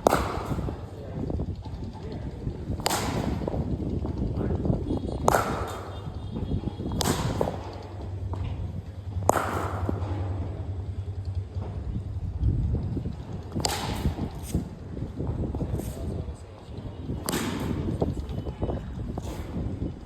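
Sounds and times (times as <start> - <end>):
cricket bat striking ball: 0.0 - 0.9, 2.8 - 3.8, 5.2 - 10.8, 13.2 - 16.1, 17.1 - 18.5.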